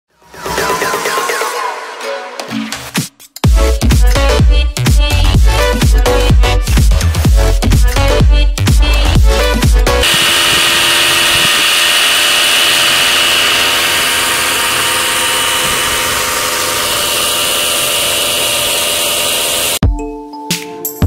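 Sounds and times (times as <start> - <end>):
power tool motor whining: 10.0 - 19.8.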